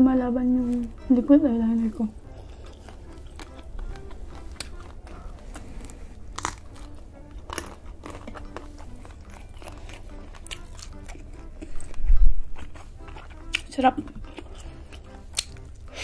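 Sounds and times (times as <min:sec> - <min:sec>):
wet chewing and biting: 0:02.2 - 0:16.0
sharp crunches: 0:05.8 - 0:11.2.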